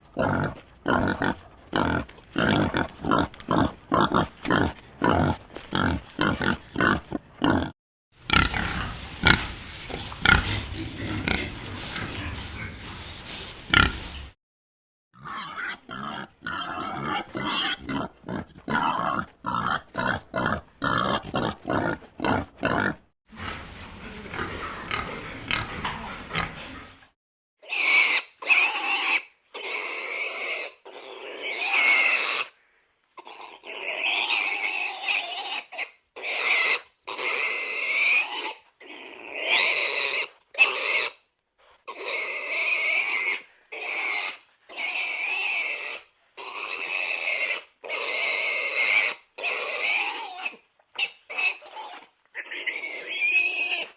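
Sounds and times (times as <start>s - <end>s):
pig grunting: 0.1s - 14.4s, 15.2s - 28.2s
pig squealing: 15.2s - 23.0s, 27.6s - 32.5s, 33.2s - 41.2s, 41.9s - 53.9s.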